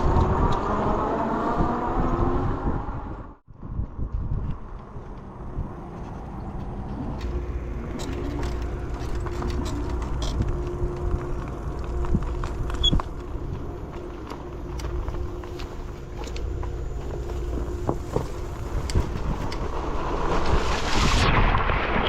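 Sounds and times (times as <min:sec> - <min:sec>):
vehicle rumbling: 0:00.0 - 0:22.0.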